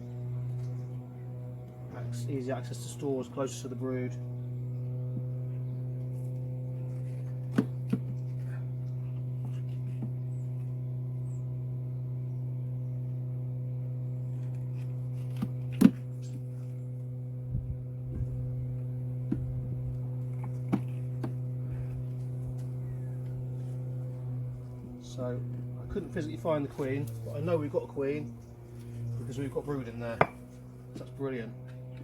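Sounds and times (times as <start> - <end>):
honeybee colony humming: 0.0 - 32.0
wooden hive frames knocking: 7.5 - 8.2, 19.2 - 21.5, 30.1 - 30.5.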